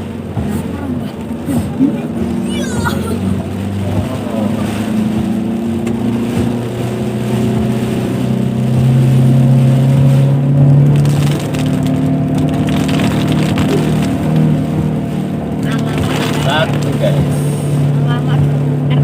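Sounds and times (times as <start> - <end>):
car engine revving uphill: 0.0 - 19.0
heavy rain hiss: 15.6 - 18.0.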